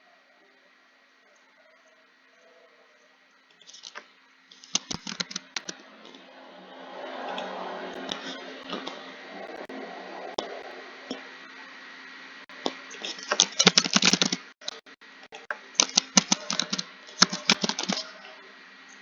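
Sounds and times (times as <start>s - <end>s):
faint steady hum: 0.0s - 19.0s
keyboard typing: 3.6s - 6.2s, 12.9s - 14.8s, 15.8s - 18.3s.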